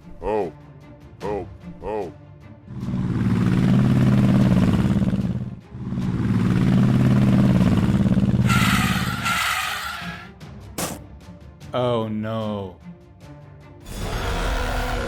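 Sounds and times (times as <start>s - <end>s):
vehicle engine running: 2.7s - 9.5s.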